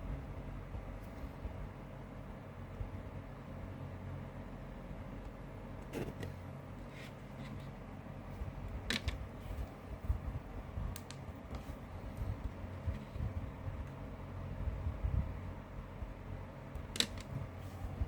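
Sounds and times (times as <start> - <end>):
low steady rumble: 0.0 - 18.0
cd case clicks and taps: 16.9 - 17.3.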